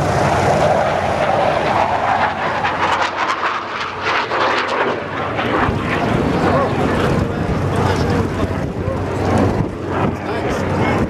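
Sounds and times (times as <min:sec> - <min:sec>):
airplane engine drone: 0:00.0 - 0:11.0.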